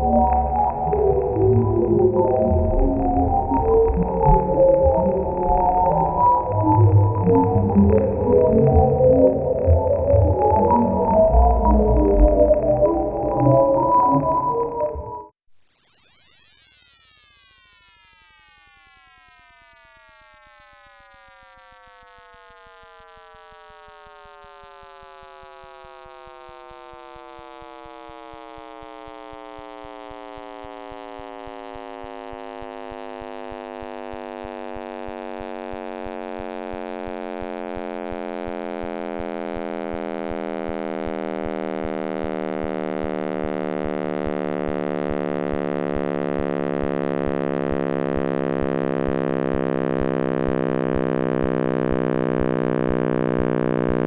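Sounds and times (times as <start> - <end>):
sliding electronic chord: 0.0 - 15.3.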